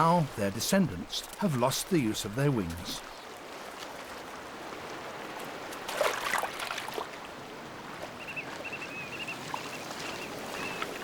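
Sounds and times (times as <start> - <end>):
sea water washing on rocks: 0.0 - 7.2
water splash: 5.7 - 7.2.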